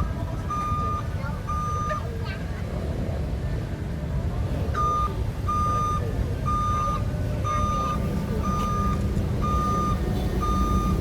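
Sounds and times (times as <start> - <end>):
travel alarm beeping: 0.0 - 2.1, 4.8 - 11.0
diesel engine rumbling: 0.0 - 11.0.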